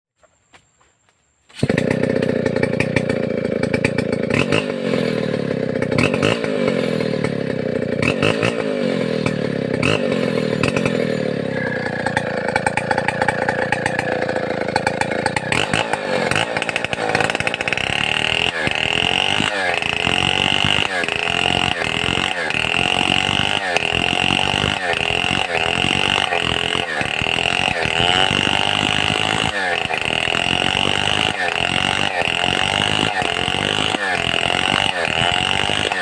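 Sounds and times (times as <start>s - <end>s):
chainsaw sawing through log: 1.5s - 36.0s.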